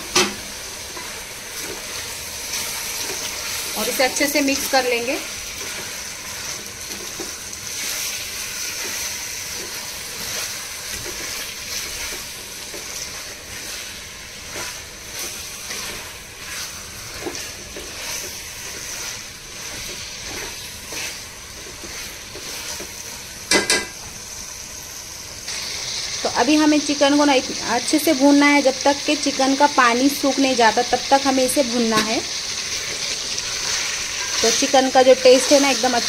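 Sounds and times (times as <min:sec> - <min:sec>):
chicken sizzling in a pan: 0:00.0 - 0:36.0
spoon scraping a pan: 0:14.5 - 0:24.0, 0:32.8 - 0:35.9.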